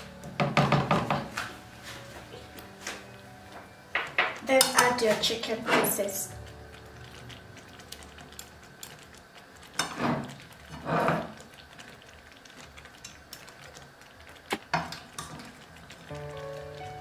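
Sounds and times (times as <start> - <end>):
tongs ticking and scraping: 2.4 - 16.8
tongs clicking against pan: 4.3 - 5.2.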